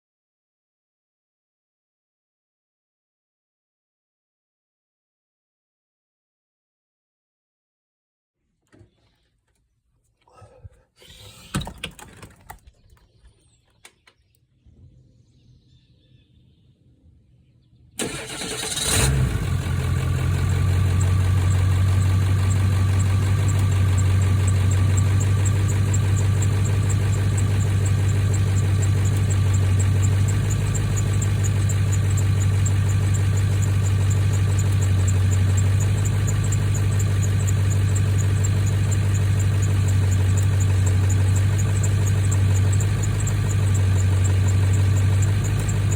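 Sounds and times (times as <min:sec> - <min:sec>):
diesel engine starting and idling: 0:18.0 - 0:45.9.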